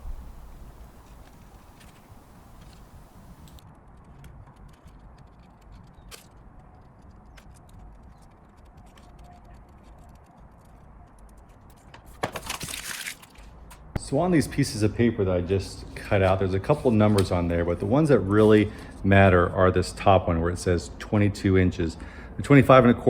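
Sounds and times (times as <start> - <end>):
paper rustling: 0.8 - 13.8.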